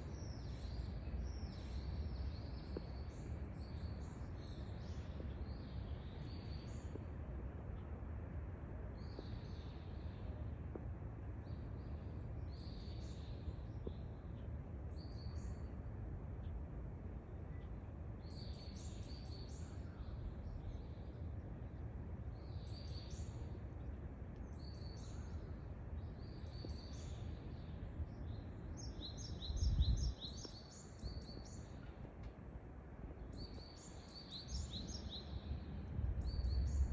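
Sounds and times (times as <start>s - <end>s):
low background rumble: 0.0s - 36.9s
small birds chirping: 22.4s - 32.0s.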